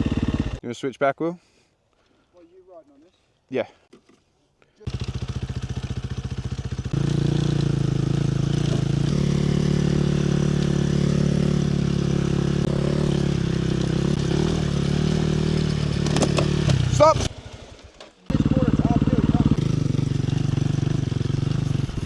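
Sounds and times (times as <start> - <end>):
dirt bike engine running: 0.0 - 0.6, 4.9 - 22.0.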